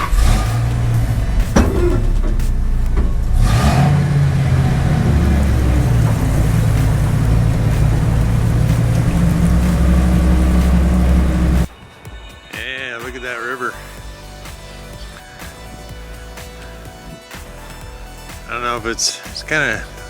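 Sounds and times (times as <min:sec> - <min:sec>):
vehicle engine running: 0:00.0 - 0:11.7.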